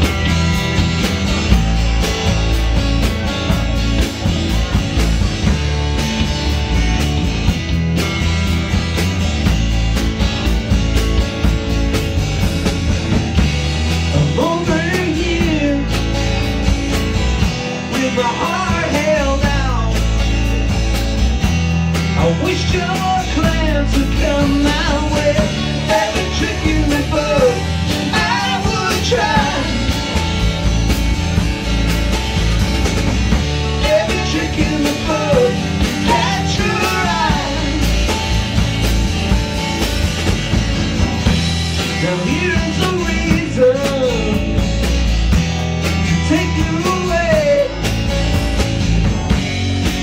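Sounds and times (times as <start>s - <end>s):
live rock band playing: 0.0s - 50.0s
person singing: 22.2s - 30.0s, 33.8s - 38.2s.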